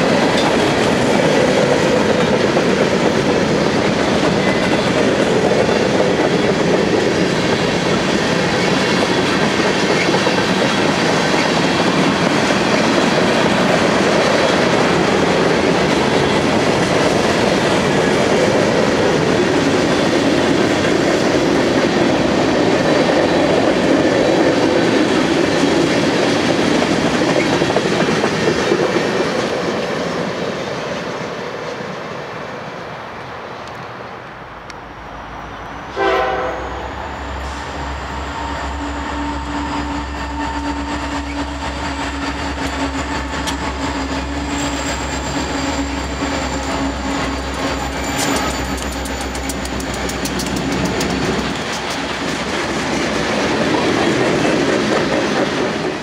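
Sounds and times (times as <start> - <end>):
freight train rolling over rails: 0.0 - 56.0
diesel locomotive horn blast: 35.9 - 41.6.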